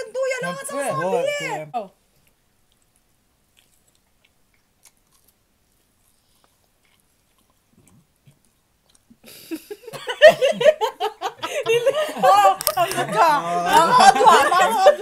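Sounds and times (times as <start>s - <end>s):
people chewing food: 1.9s - 10.2s
soft mouth clicks: 6.3s - 9.4s
people laughing: 9.5s - 15.0s.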